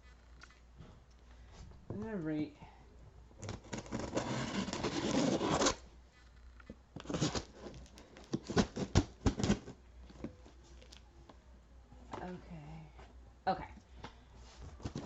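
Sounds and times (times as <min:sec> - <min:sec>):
packaging rustling and tearing: 0:03.4 - 0:05.8, 0:07.0 - 0:09.7.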